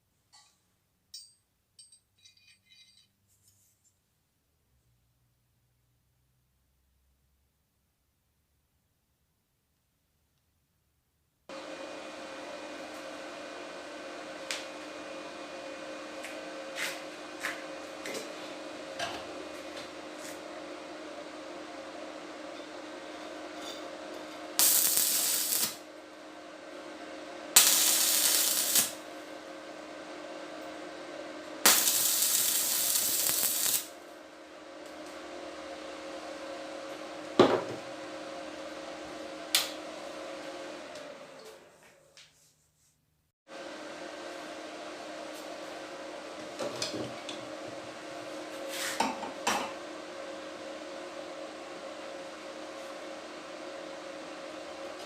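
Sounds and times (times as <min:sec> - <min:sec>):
electric motor humming: 0:11.5 - 0:41.7
harsh hissing burst: 0:24.6 - 0:25.8, 0:27.5 - 0:29.0, 0:31.6 - 0:34.0
small electric motor humming: 0:24.6 - 0:26.4, 0:27.4 - 0:29.2, 0:31.6 - 0:34.0.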